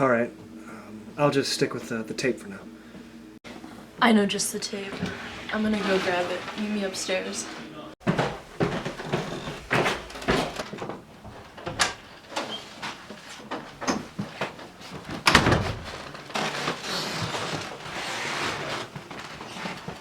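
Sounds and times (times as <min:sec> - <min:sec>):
rustling: 0:04.8 - 0:13.5.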